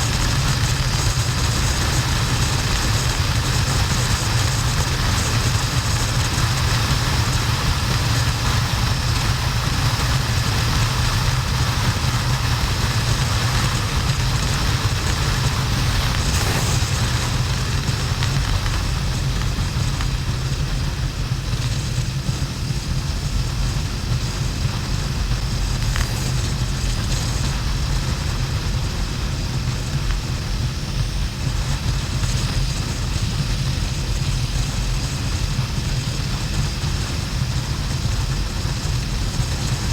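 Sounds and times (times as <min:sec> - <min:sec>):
motorcycle engine running: 0:00.0 - 0:30.8
wind noise: 0:11.2 - 0:39.9
road noise: 0:15.5 - 0:19.3.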